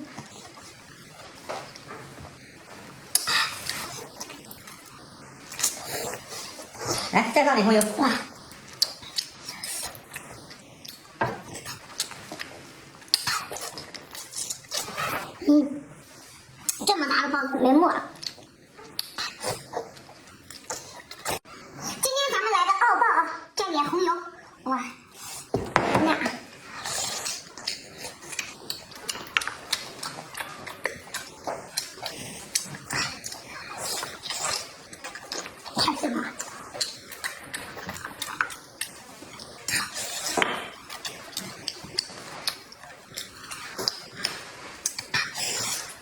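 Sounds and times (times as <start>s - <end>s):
wet mouth clicks chewing: 8.4s - 15.3s, 18.2s - 21.4s, 26.8s - 35.8s, 36.4s - 46.0s.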